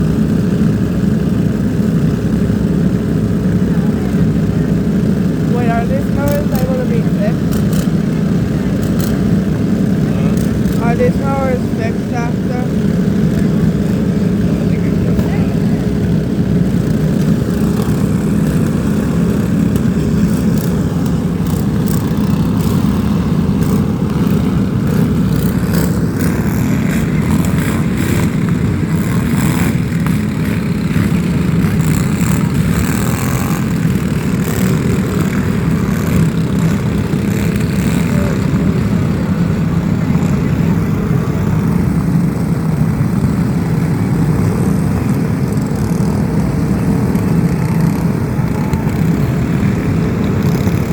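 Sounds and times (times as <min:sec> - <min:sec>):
engine droning: 0:00.0 - 0:50.9.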